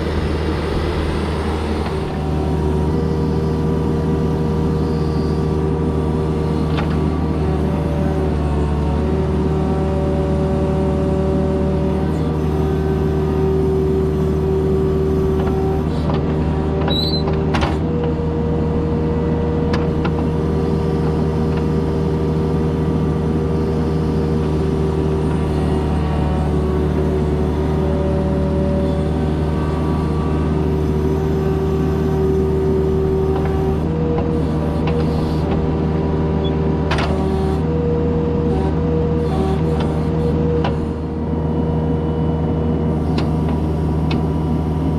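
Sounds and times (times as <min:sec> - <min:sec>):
excavator diesel engine running: 0:00.0 - 0:44.9
hydraulic whine: 0:00.0 - 0:44.9.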